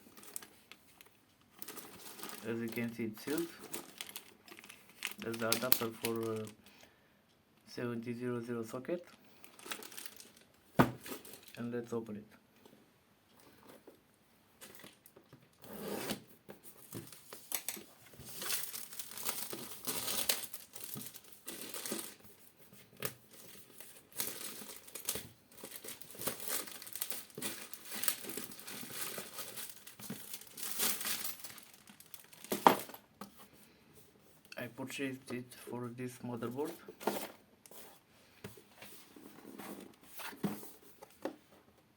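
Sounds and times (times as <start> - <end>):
packaging crinkling and tearing: 1.6 - 6.6, 9.4 - 11.6, 17.0 - 22.2, 23.1 - 33.0.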